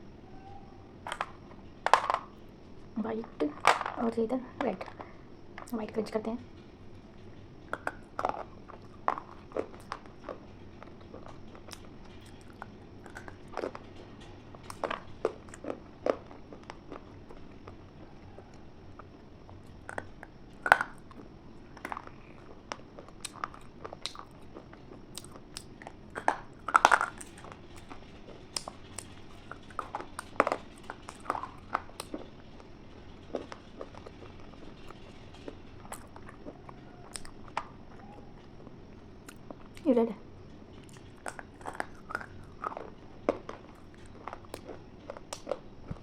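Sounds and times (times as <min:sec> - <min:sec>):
person chewing crunchy food: 0:07.7 - 0:13.8, 0:14.7 - 0:35.0, 0:35.8 - 0:39.8, 0:40.8 - 0:46.0.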